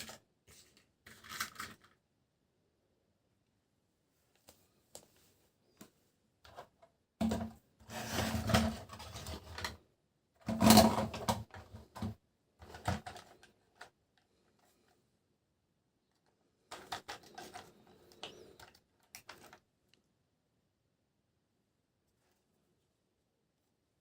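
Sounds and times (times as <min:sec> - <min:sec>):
packaging rattling and rustling: 0:16.7 - 0:19.6.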